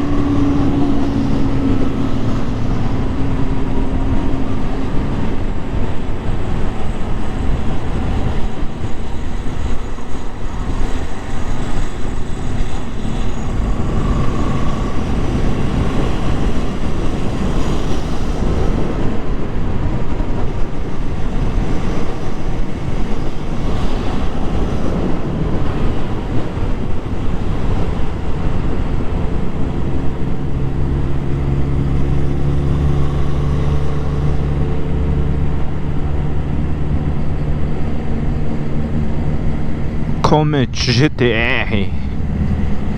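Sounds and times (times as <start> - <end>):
wind rumble on microphone: 0.0 - 40.2.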